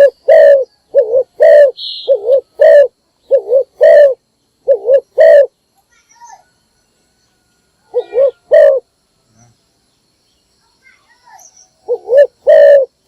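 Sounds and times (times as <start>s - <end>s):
dove cooing: 0.0s - 5.6s, 7.8s - 8.9s, 11.8s - 13.0s.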